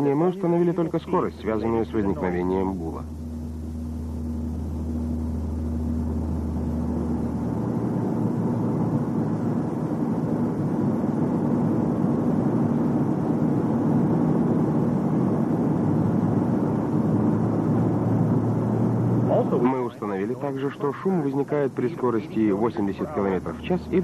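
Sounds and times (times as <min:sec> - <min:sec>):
low hum: 0:00.0 - 0:24.0
car road and drivetrain rumble: 0:14.3 - 0:19.7.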